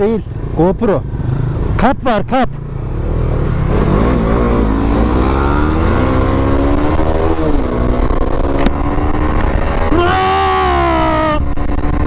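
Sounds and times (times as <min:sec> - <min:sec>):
motorcycle engine accelerating: 0:02.6 - 0:12.0
wind rumble: 0:03.1 - 0:10.0.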